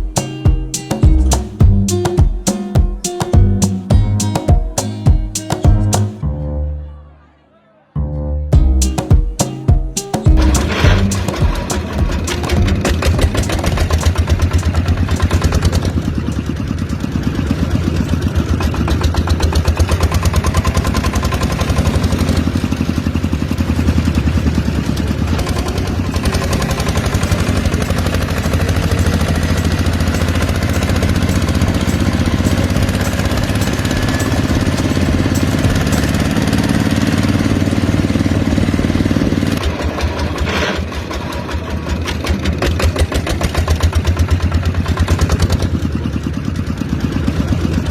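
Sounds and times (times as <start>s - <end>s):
small pump engine running: 10.3s - 47.9s.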